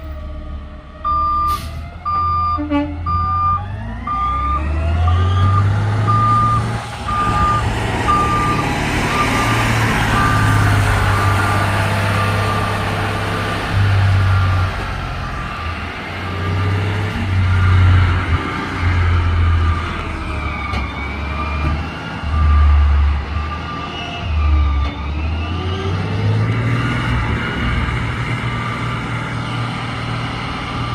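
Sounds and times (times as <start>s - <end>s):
truck engine revving: 0.0s - 30.9s
reversing alarm beeping: 1.0s - 12.9s, 14.2s - 15.8s, 19.6s - 24.6s.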